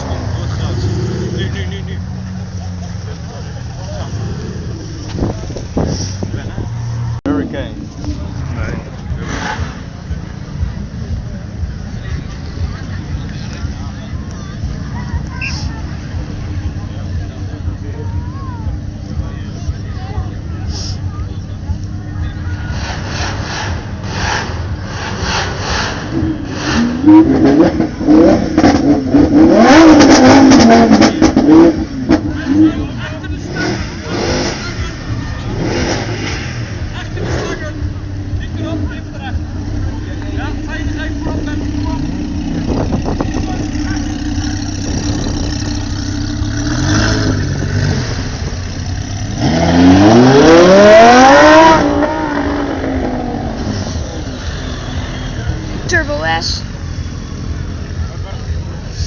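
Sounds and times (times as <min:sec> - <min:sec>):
sports car engine revving: 0:00.0 - 0:59.0
exhaust pops and crackles: 0:04.8 - 0:06.6, 0:22.8 - 0:55.3.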